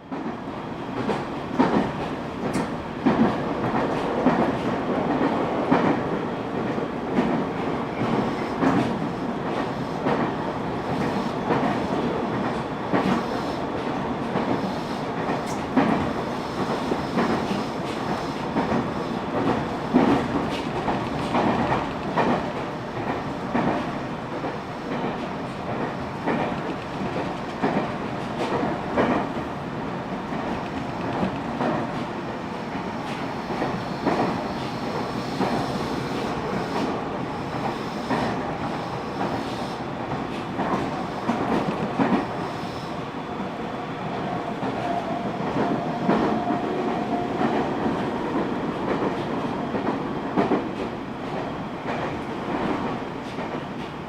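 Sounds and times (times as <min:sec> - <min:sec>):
train rumbling: 0:00.0 - 0:54.0
train wheels clicking over rail joints: 0:14.2 - 0:29.4, 0:35.4 - 0:42.4.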